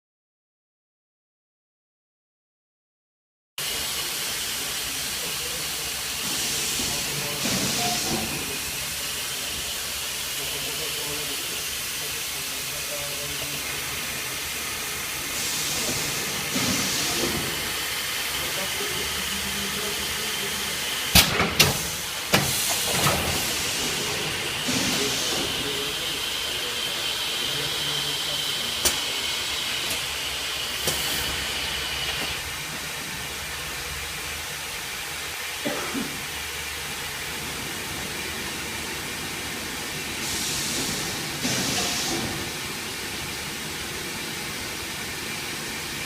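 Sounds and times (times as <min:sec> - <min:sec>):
steam hissing: 0:03.6 - 0:46.0
bursts of steam: 0:03.7 - 0:32.5.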